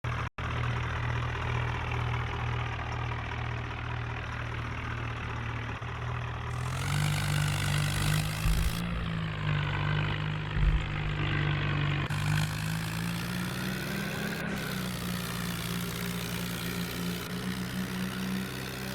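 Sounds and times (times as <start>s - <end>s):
tractor diesel engine running: 0.1s - 18.9s
short low thumps: 7.9s - 12.3s.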